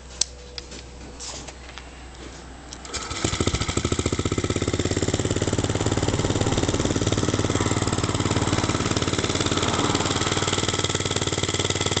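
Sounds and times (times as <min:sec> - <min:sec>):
mini bike engine idling: 0:02.8 - 0:12.0.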